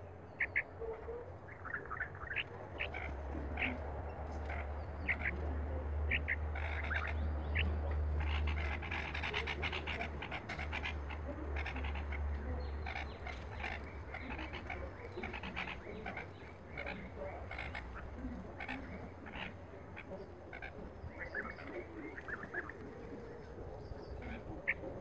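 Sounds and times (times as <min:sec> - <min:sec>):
birds chirping: 0:00.0 - 0:25.0
steady low rumble: 0:00.0 - 0:25.0.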